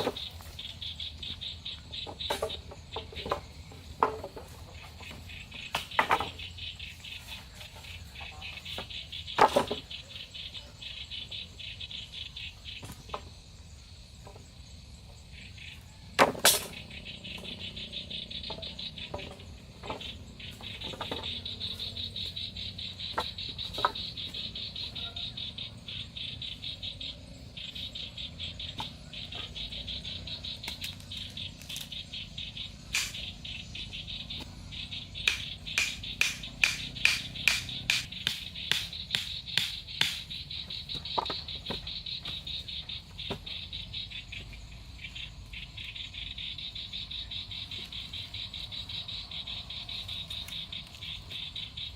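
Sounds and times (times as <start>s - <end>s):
insects chirping trill: 0.0s - 51.9s
sharp clicks or knocks: 32.9s - 33.4s, 35.2s - 40.3s.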